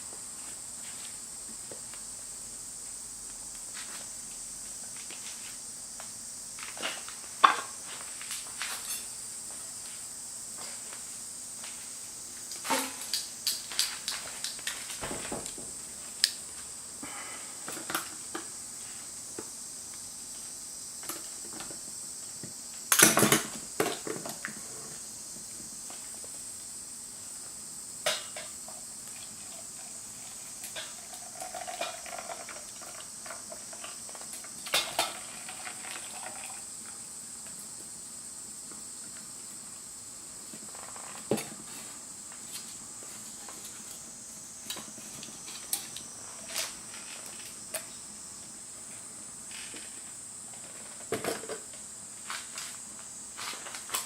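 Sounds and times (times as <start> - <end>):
cookware and utensils clattering: 30.7 - 33.0.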